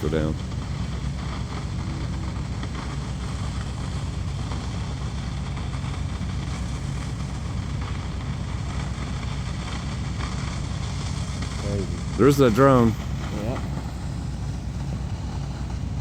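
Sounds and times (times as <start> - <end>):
constant hiss: 0.0 - 16.0
heavy diesel engines running: 0.0 - 16.0.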